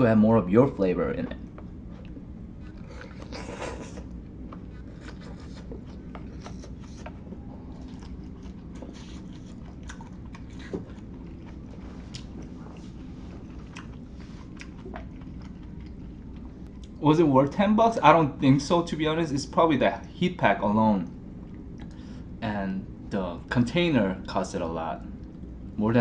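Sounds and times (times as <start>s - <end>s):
steady low hum: 0.0s - 26.0s
person chewing: 1.4s - 17.0s.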